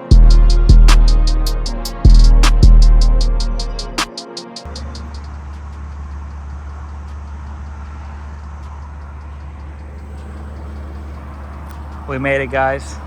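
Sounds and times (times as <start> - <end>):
road noise: 0.0 - 13.0
car engine droning: 4.7 - 13.0.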